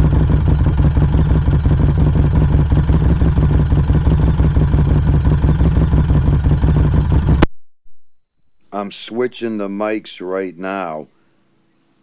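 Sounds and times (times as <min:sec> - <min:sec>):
motorcycle exhaust running steadily: 0:00.0 - 0:07.5.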